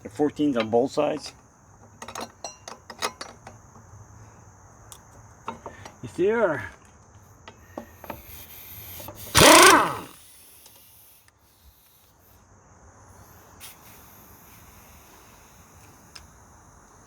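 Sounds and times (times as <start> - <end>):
crickets chirping: 0.0 - 17.0
hand tools clicking on bolts: 9.3 - 10.1.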